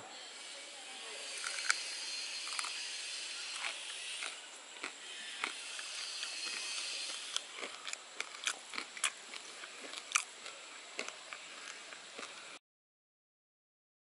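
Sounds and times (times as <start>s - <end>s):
steady high hiss: 0.0s - 12.6s
crunchy chicken being chewed: 1.4s - 12.6s.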